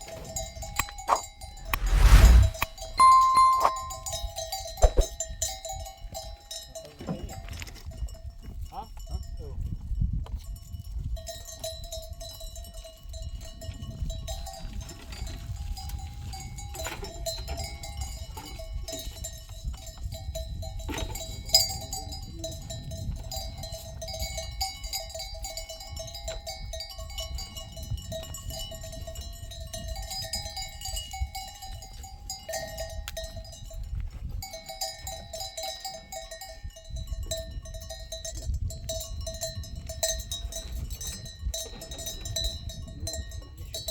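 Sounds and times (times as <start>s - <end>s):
low rumble: 1.6s - 4.1s
livestock bells clanking: 3.0s - 4.2s, 5.4s - 43.9s.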